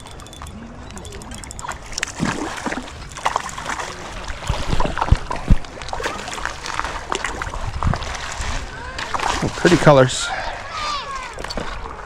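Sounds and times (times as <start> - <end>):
water splashing at shore: 0.0 - 12.0.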